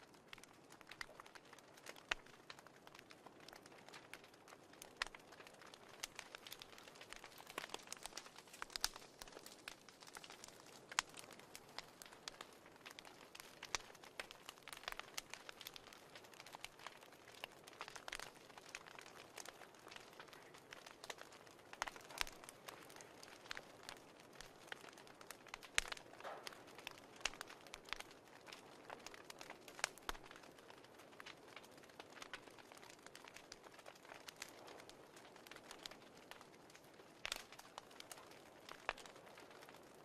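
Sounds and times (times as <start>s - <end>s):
fireplace crackling: 0.0s - 40.0s.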